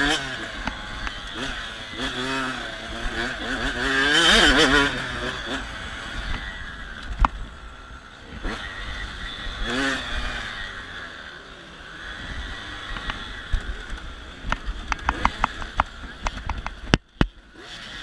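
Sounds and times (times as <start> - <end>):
dirt bike engine revving: 0.0 - 18.0
sharp knocks and clicks: 14.5 - 17.4.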